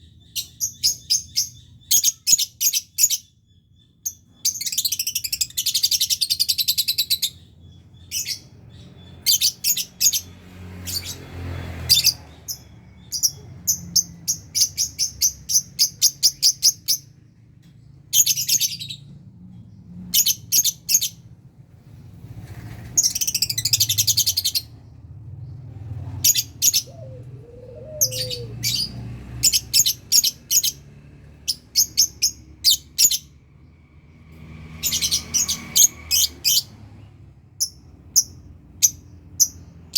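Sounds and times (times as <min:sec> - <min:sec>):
lovebirds chirping: 0:00.0 - 0:19.2, 0:22.5 - 0:33.4.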